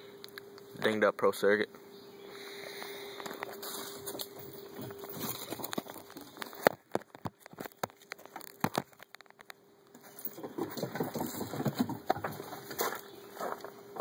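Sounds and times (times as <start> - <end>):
rustling and crackling: 3.2 - 14.0.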